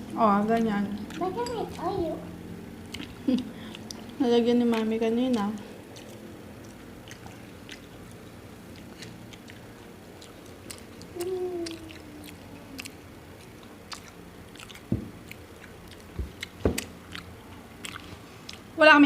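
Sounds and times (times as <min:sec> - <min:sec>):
wet chewing with mouth clicks: 0:00.0 - 0:02.0, 0:02.8 - 0:18.8
person humming: 0:11.1 - 0:12.9
dull thumps: 0:14.9 - 0:15.2, 0:16.1 - 0:16.9.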